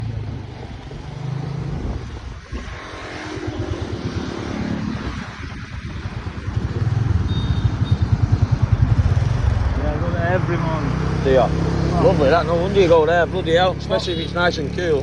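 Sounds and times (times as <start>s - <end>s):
wind noise on microphone: 0.0s - 10.3s
motorbike engine running: 6.2s - 10.1s.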